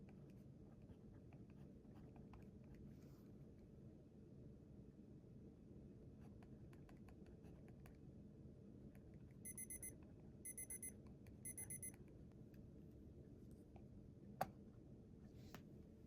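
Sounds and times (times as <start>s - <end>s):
electronic timer beeping: 9.4s - 11.9s.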